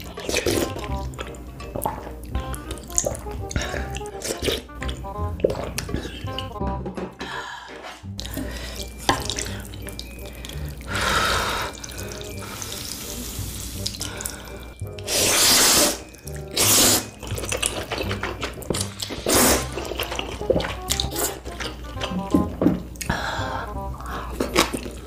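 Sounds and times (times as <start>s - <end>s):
background music: 0.0s - 25.0s
person slurping noodles: 1.8s - 4.7s, 10.9s - 21.7s.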